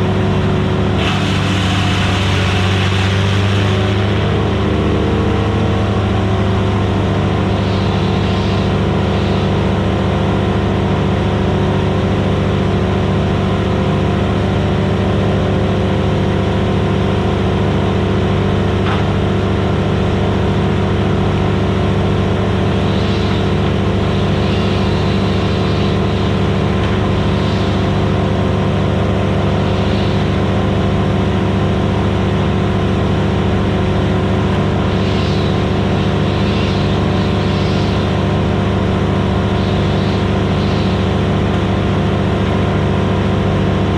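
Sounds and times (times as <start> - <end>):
wood chipper engine drone: 0.0 - 43.9.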